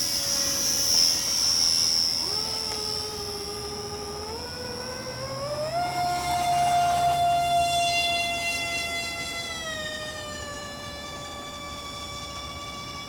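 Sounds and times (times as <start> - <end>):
high model airplane motor whine: 0.0 - 13.0
lower model airplane motor whine: 0.0 - 13.0.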